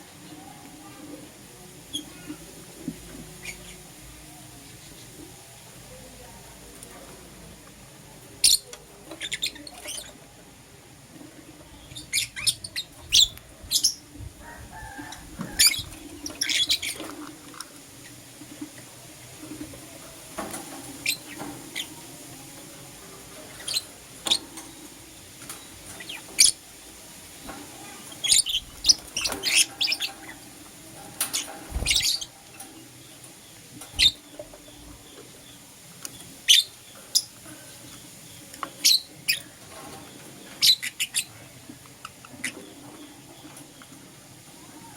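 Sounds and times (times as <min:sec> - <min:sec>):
lovebirds chirping: 0:11.7 - 0:17.1, 0:23.4 - 0:44.9.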